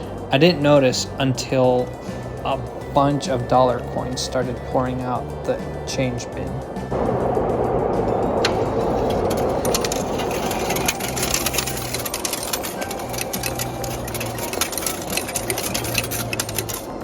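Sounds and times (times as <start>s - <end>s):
coin dispenser whirring: 8.0s - 17.0s
coins clinking into metal bin: 8.4s - 17.0s.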